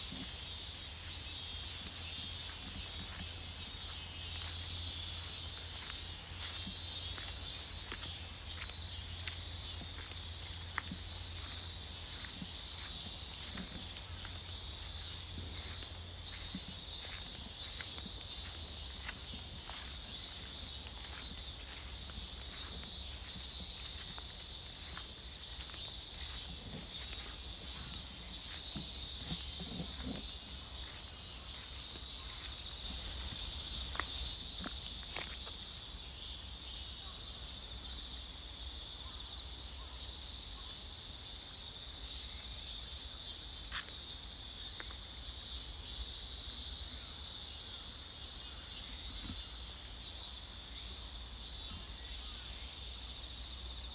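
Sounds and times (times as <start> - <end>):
faint footstep clicks: 0.0 - 35.6
insects chirping: 0.0 - 53.9.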